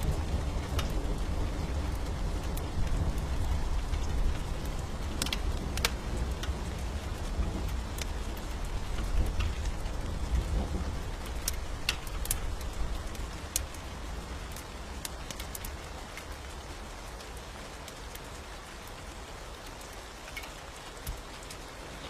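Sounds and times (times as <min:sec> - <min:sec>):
thunder rumbling: 0:00.0 - 0:15.0
steady rain: 0:00.0 - 0:22.0
wood fire crackling: 0:00.0 - 0:22.0.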